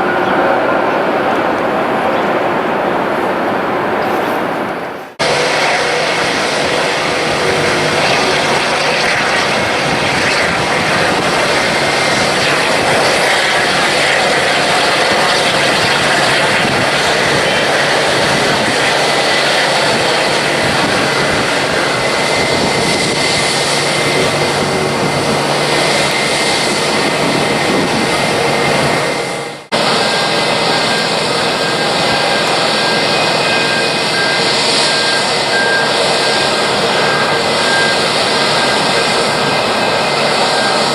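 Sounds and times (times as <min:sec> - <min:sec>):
jet engines roaring: 0:00.0 - 0:40.9.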